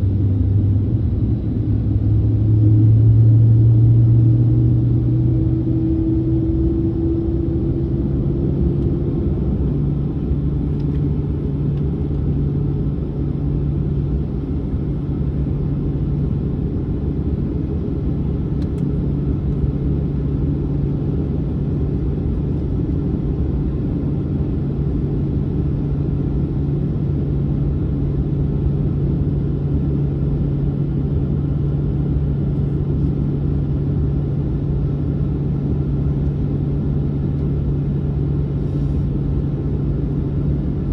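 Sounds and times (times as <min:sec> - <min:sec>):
airplane cabin rumble: 0:00.0 - 0:40.9.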